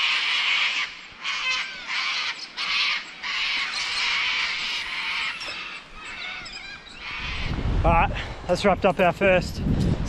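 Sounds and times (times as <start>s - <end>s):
birds screeching: 0.0s - 7.7s.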